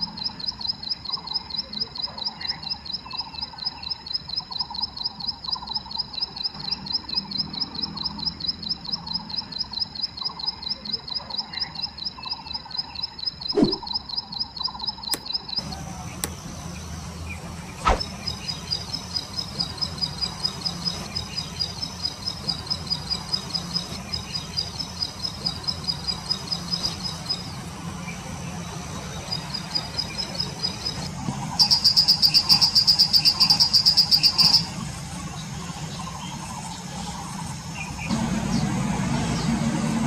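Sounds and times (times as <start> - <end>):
bird chirping and trilling: 0.1 - 15.7
sharp knock: 17.8 - 18.1.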